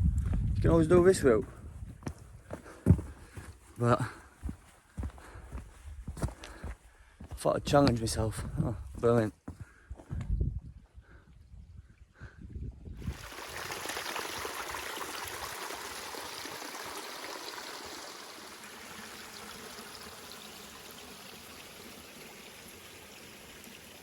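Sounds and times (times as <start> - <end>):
stream water flowing: 13.0 - 24.0.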